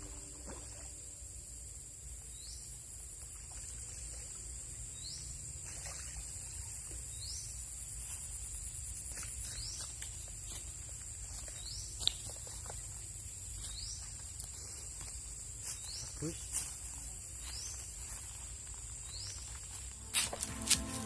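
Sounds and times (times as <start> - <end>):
high-pitched insect drone: 0.0 - 1.9, 19.7 - 21.0.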